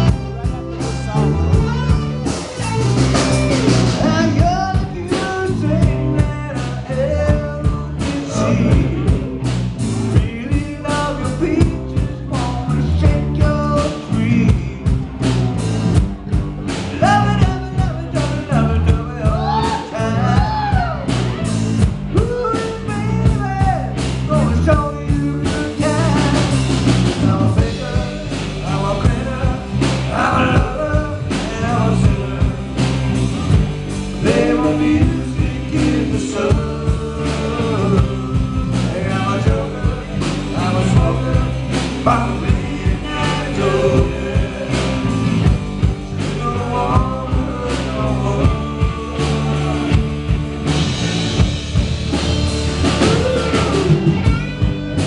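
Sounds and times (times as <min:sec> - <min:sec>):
person singing: 0:00.0 - 0:09.4, 0:16.8 - 0:33.0, 0:34.1 - 0:50.1, 0:52.8 - 0:54.5
drum beat: 0:00.0 - 0:55.0
electric guitar: 0:00.0 - 0:55.0.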